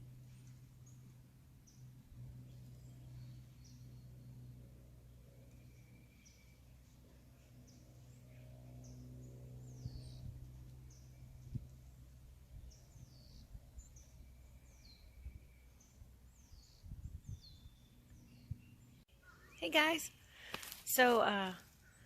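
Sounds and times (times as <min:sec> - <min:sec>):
steady low hum: 0:00.0 - 0:22.0
wild birds calling: 0:17.5 - 0:20.6, 0:21.7 - 0:22.0.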